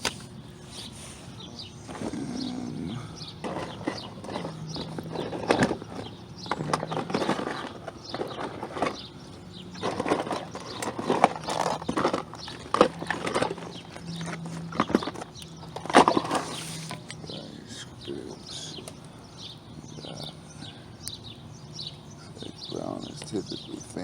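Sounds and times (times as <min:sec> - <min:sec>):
faint low hum: 0:00.0 - 0:24.0
hand tools clicking and knocking: 0:03.4 - 0:17.3.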